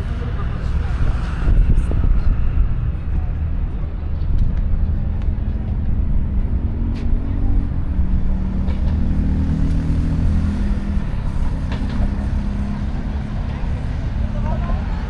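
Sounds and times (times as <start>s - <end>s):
traffic rumble with engine hum: 0.0s - 15.0s.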